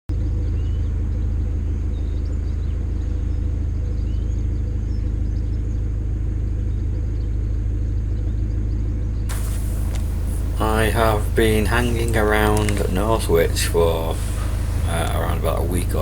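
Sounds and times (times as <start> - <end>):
diesel engine running: 9.3 - 16.0.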